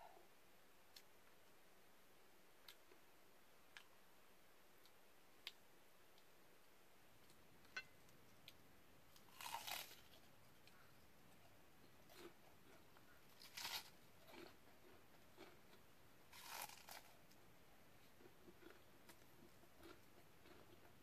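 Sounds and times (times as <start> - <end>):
faint chewing clicks: 3.7 - 4.0, 7.2 - 21.0
soft crunchy bites: 7.2 - 21.0.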